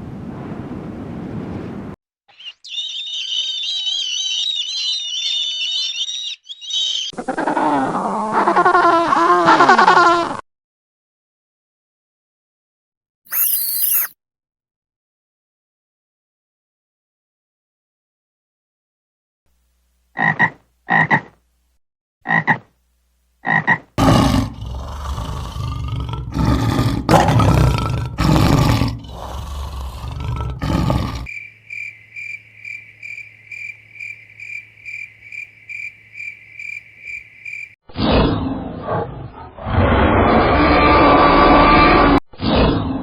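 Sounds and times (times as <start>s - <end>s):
harsh animal calls: 13.3s - 14.1s, 23.4s - 37.7s
high-pitched pulses: 13.3s - 14.1s.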